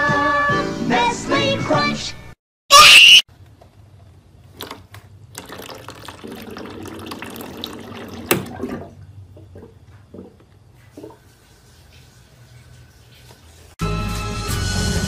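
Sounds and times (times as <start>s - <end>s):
water running from a tap: 5.3s - 8.9s, 10.8s - 13.8s.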